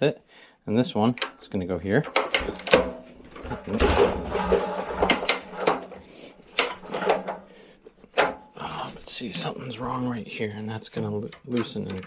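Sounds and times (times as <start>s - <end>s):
sharp lever clicks: 2.1s - 3.0s
strap rubbing and scraping: 2.2s - 11.2s.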